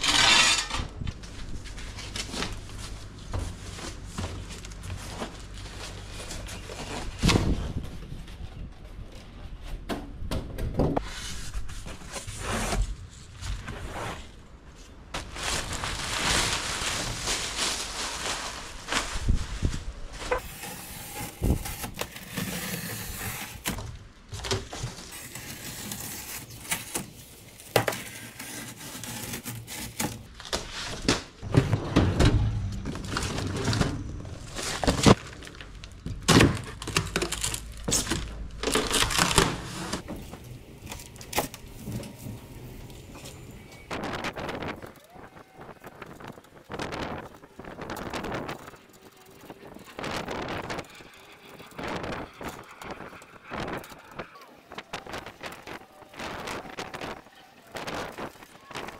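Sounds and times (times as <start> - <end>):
cardboard scraping: 11.0 - 42.6
plastic wrapping rustling: 11.3 - 58.9.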